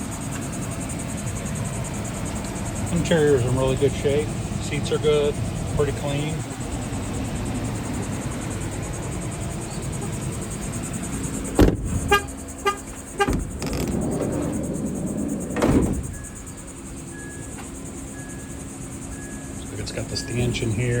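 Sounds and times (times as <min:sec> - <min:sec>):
van door shutting: 0:10.8 - 0:17.8
faint high beeps: 0:17.1 - 0:17.5, 0:18.1 - 0:20.7
electronic warning chimes: 0:18.1 - 0:21.0.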